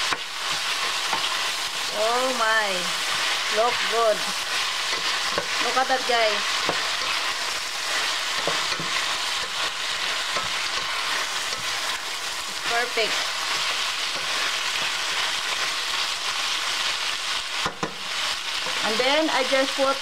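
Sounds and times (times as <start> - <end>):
meat and peppers sizzling in pan: 0.0 - 20.0
wooden spatula scraping pan: 2.9 - 16.0.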